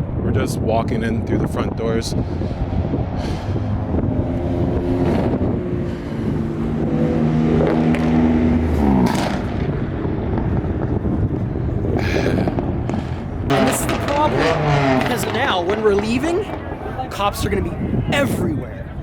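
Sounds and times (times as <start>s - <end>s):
car engine running: 2.0s - 18.3s
background din: 11.8s - 18.4s.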